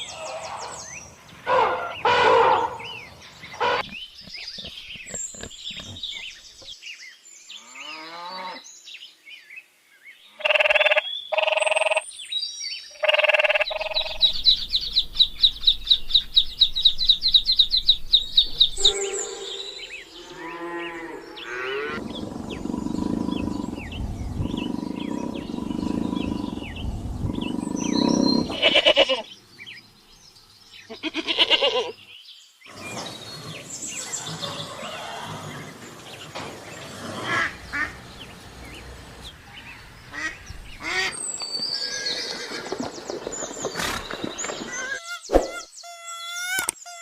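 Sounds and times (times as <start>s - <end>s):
farm animal calls: 0.0s - 6.7s, 18.4s - 29.4s, 30.9s - 32.0s, 32.7s - 41.2s
birds chirping: 0.0s - 9.1s, 10.1s - 47.0s
loud pulsed animal calls: 18.6s - 29.2s.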